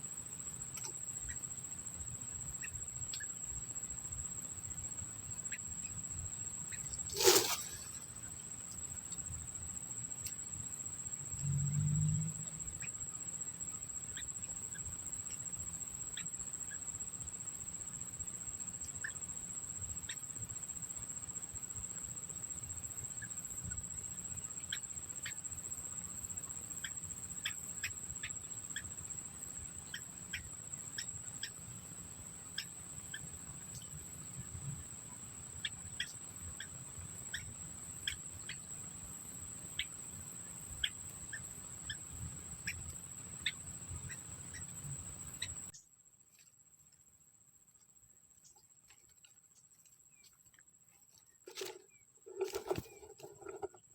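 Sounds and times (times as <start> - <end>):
high-pitched cricket trill: 0.0 - 53.9
small birds chirping: 22.9 - 45.8.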